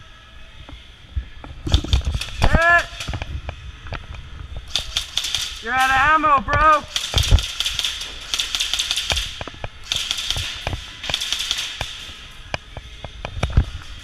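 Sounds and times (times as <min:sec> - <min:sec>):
airsoft guns firing bursts: 0:01.7 - 0:03.2, 0:04.7 - 0:12.3.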